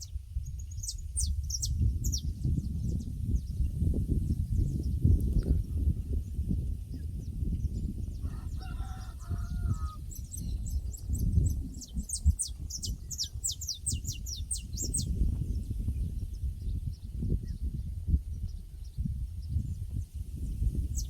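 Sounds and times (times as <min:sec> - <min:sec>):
small bird chirping: 0:00.0 - 0:05.2, 0:09.3 - 0:17.7
distant rooster crowing: 0:08.2 - 0:10.1.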